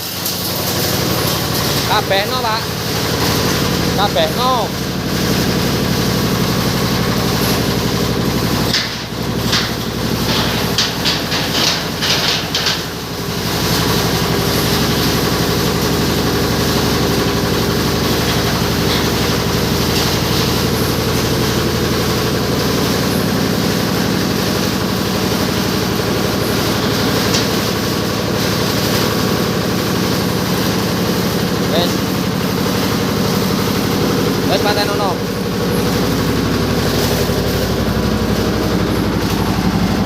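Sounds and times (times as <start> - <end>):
diesel engine running: 0.0 - 40.0
machine clanks: 0.0 - 40.0.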